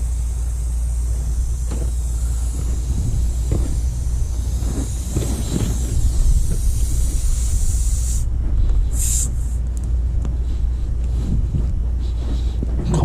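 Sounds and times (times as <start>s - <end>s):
air hissing out of tire: 0.0s - 9.7s
steady low rumble: 0.0s - 13.0s.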